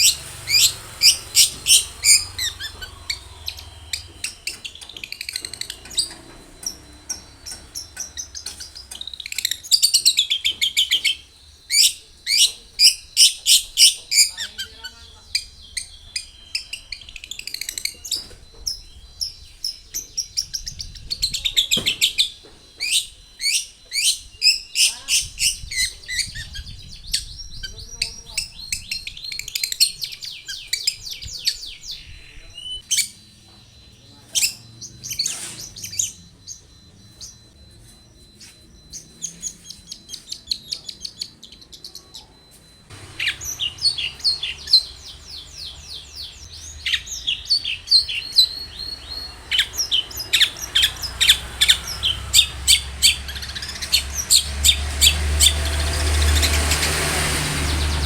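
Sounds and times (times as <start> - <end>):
shrike chirping song: 0.0 - 58.0.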